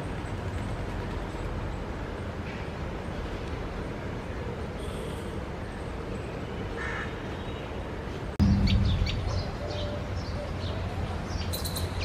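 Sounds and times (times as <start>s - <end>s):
steady low rumble: 8.4s - 10.7s.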